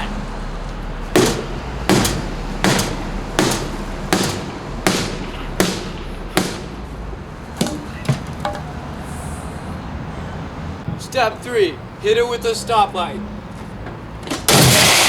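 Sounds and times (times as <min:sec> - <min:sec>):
club striking a mini fridge: 0:01.2 - 0:06.7.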